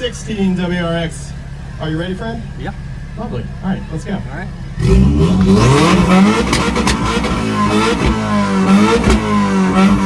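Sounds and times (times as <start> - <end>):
car engine revving: 0.0 - 10.0
exhaust pops and cracks: 6.4 - 8.3, 8.9 - 9.5.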